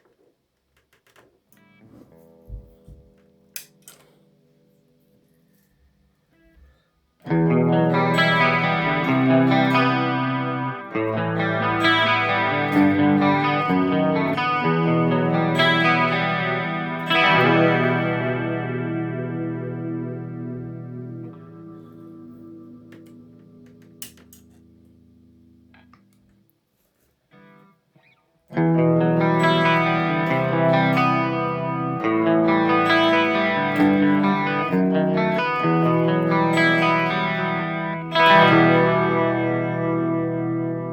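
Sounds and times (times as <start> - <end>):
electric guitar chords with chorus: 7.2 - 26.2, 28.5 - 40.9.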